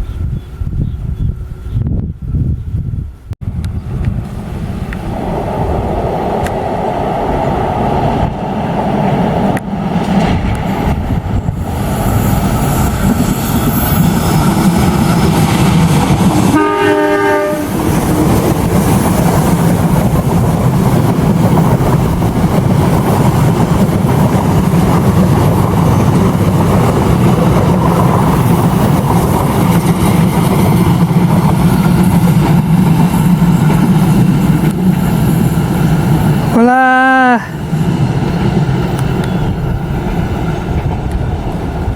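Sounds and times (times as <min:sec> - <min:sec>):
diesel locomotive engine: 0:00.0 - 0:41.9
train horn blast: 0:16.5 - 0:17.8.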